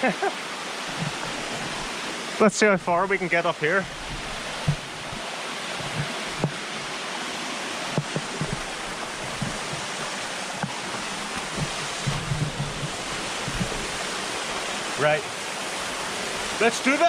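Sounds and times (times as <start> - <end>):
waterfall rushing: 0.0 - 17.0
soft knocks: 3.8 - 6.7, 7.9 - 14.0.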